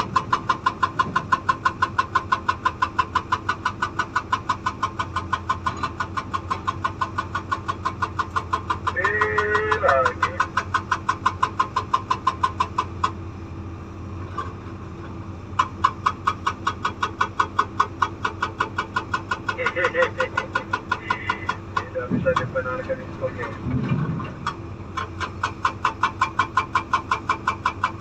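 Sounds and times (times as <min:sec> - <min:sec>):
excavator engine hum: 0:00.0 - 0:28.0
hydraulic breaker hammering stone: 0:15.6 - 0:28.0
person speaking: 0:19.6 - 0:23.7.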